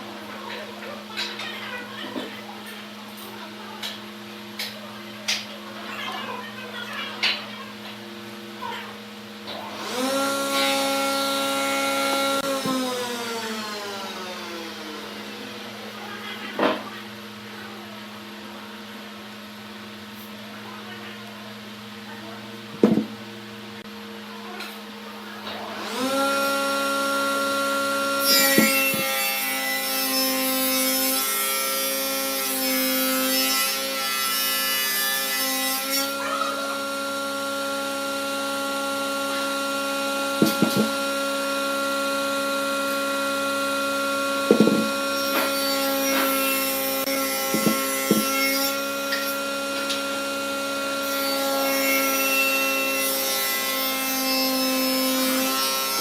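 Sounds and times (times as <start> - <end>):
wood lathe motor whine: 9.5 - 16.0, 25.4 - 56.0
short knocks: 22.8 - 23.1, 47.5 - 48.3
tool scraping spinning wood: 28.0 - 30.4, 40.3 - 41.2, 44.4 - 50.0.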